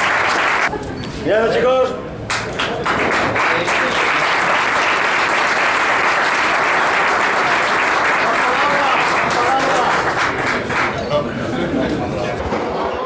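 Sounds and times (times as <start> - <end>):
group of people applauding: 0.0 - 0.7, 2.3 - 11.3.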